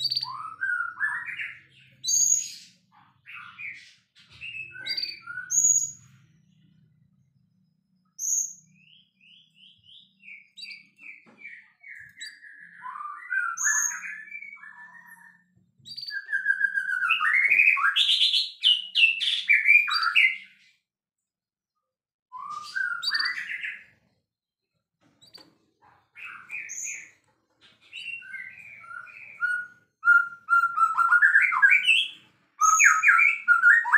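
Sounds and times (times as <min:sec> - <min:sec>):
bird singing whistled song: 0:00.0 - 0:03.8, 0:04.4 - 0:06.1, 0:08.1 - 0:20.6, 0:22.3 - 0:24.0, 0:26.2 - 0:27.2, 0:27.8 - 0:33.9.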